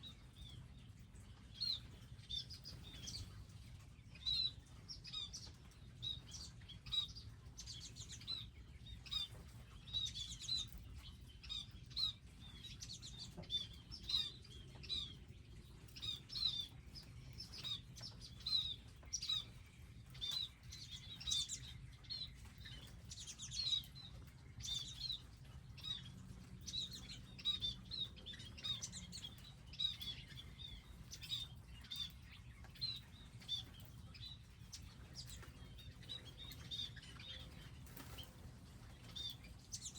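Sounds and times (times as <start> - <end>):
small birds chirping: 0.0 - 39.9
wingbeats fluttering: 34.8 - 39.9.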